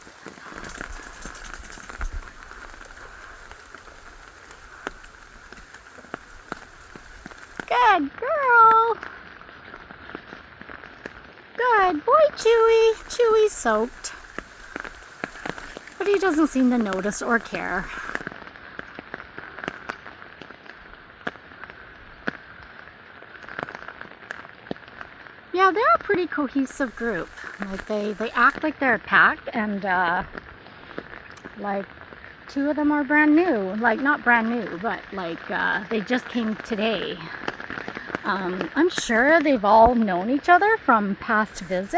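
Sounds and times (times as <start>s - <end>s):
raindrops ticking: 0.0s - 8.0s, 12.4s - 18.2s, 26.7s - 28.6s, 33.8s - 39.5s, 41.5s - 41.9s
steady rain hissing: 0.0s - 11.1s, 12.0s - 18.8s, 26.2s - 28.8s, 30.4s - 41.9s.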